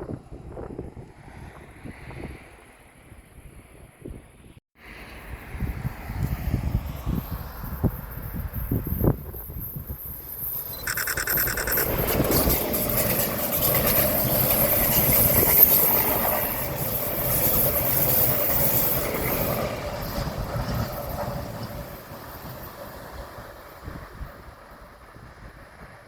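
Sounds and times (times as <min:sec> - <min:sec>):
train passing: 0:04.8 - 0:26.0
short high tone: 0:10.7 - 0:12.0.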